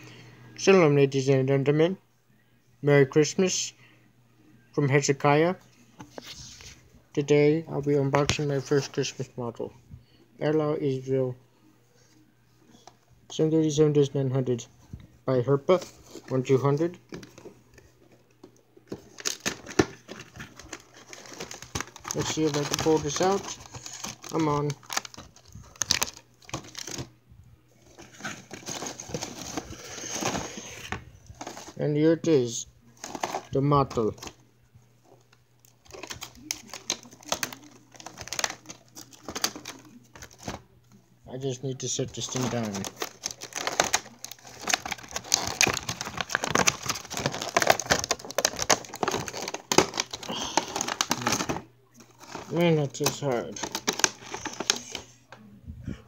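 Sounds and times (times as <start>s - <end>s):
plastic packaging rustling and clicking: 15.7s - 27.1s, 27.8s - 31.8s, 33.0s - 34.4s, 35.0s - 40.7s, 41.8s - 55.1s
box rustling and scraping: 27.8s - 31.8s, 33.0s - 34.3s
packaging clicks and knocks: 35.8s - 40.6s, 42.3s - 51.6s, 52.2s - 55.0s.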